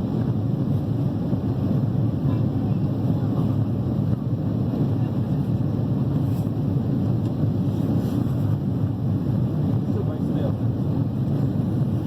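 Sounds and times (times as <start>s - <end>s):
jet engine cabin rumble: 0.0s - 12.0s.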